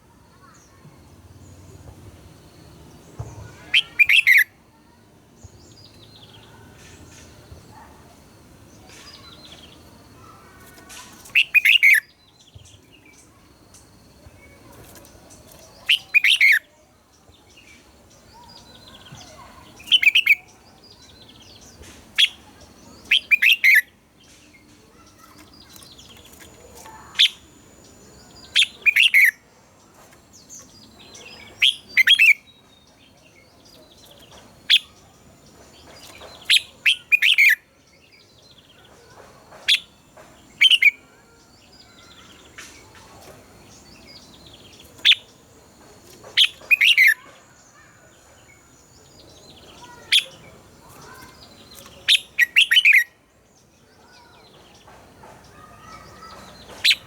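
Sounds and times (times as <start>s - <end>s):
bulbul singing: 2.4s - 53.3s, 54.0s - 57.0s.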